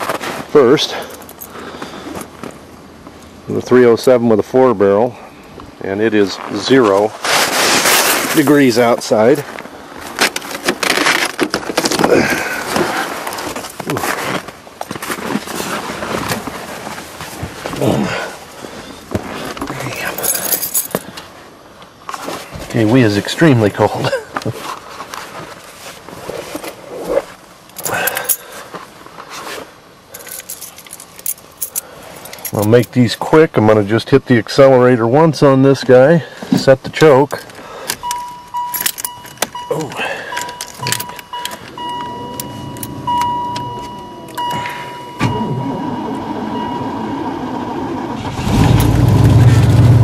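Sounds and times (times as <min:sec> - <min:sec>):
car keys jangling: 0:01.0 - 0:01.5, 0:19.9 - 0:21.2, 0:27.7 - 0:28.5, 0:30.1 - 0:33.0, 0:37.2 - 0:47.0
rustling handling noise: 0:06.2 - 0:22.9, 0:24.3 - 0:33.0, 0:37.1 - 0:45.2.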